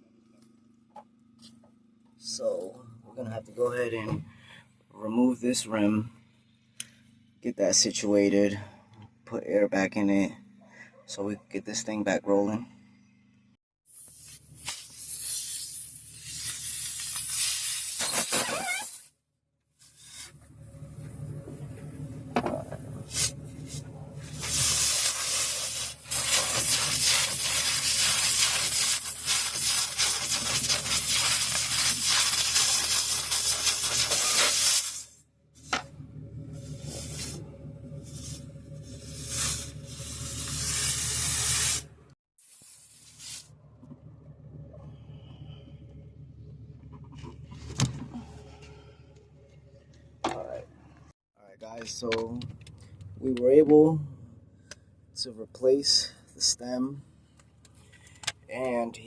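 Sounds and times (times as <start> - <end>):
compressed air hissing: 13.9 - 19.1, 23.0 - 35.2, 36.6 - 43.5
low steady hum: 20.1 - 26.2, 35.4 - 42.2, 43.4 - 59.0.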